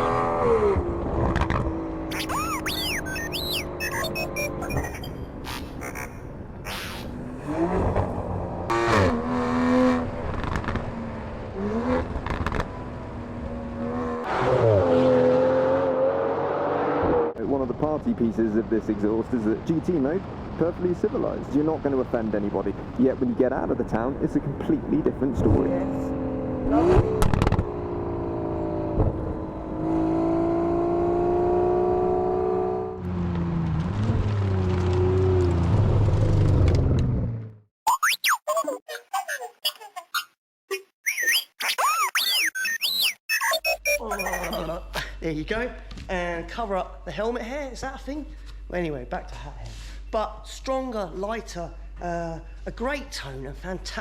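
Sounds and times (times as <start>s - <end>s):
engine revving: 0.0s - 5.0s, 7.1s - 17.4s, 25.4s - 37.6s.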